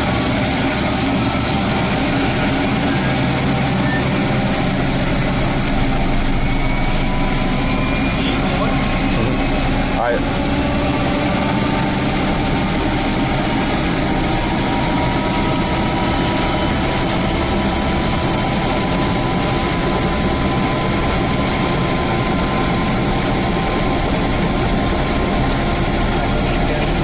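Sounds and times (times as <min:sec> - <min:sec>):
constant whine: 0:00.0 - 0:27.0
helicopter rotor and engine: 0:00.0 - 0:27.0.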